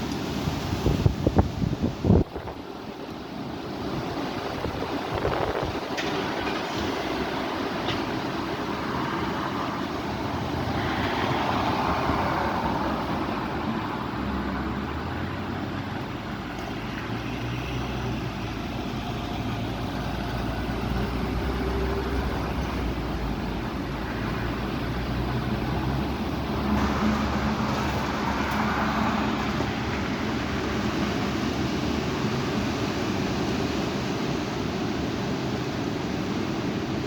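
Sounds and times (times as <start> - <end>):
road traffic: 0.0 - 37.0
strong wind blowing: 0.0 - 37.0
low vehicle engine hum: 9.2 - 33.8.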